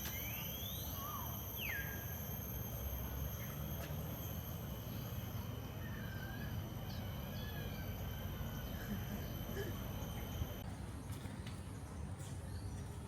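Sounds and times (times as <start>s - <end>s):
faint bird chirps: 0.0s - 2.2s
insect drone: 0.0s - 10.6s.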